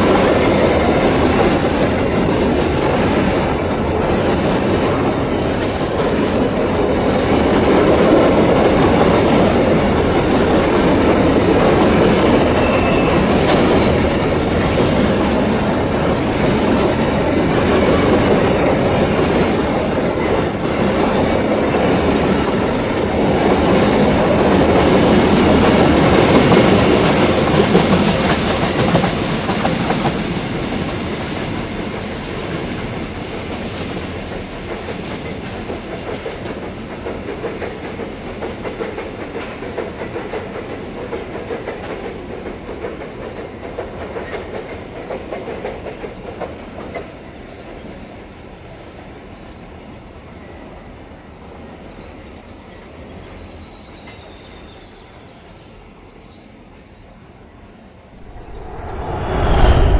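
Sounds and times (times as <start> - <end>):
high wheel squeals: 5.1 - 7.2.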